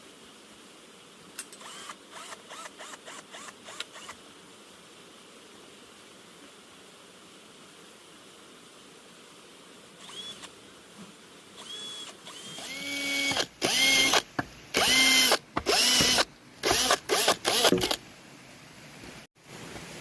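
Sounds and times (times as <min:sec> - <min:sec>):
power drill whining: 0:11.6 - 0:18.0.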